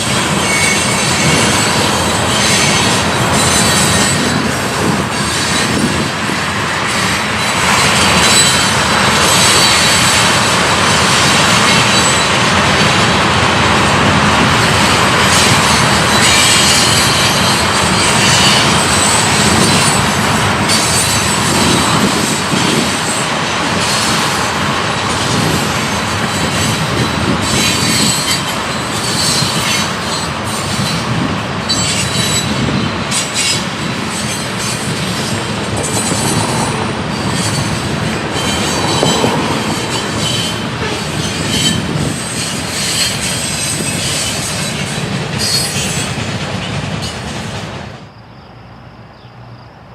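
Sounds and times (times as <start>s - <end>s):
high wheel squeals: 0.0s - 6.0s, 6.8s - 10.5s, 14.6s - 24.4s, 26.2s - 46.2s
train wheel and rail noise: 0.0s - 49.9s.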